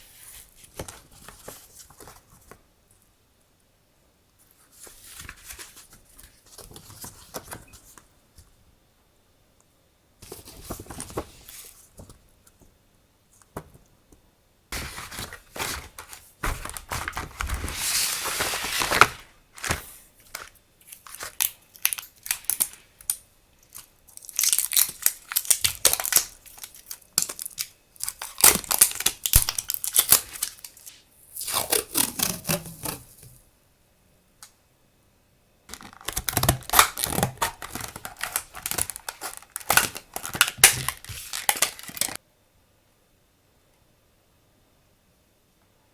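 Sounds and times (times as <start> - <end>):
paper packaging rustling and tearing: 14.8 - 22.8, 23.7 - 33.1, 35.7 - 42.2.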